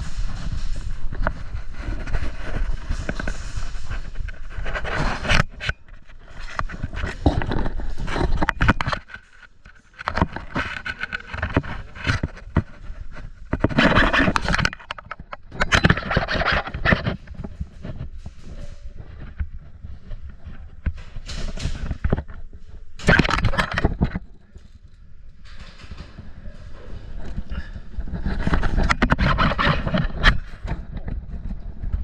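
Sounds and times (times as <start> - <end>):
rustling and scraping movement: 0.0 - 32.0
heavy breathing: 26.2 - 28.2.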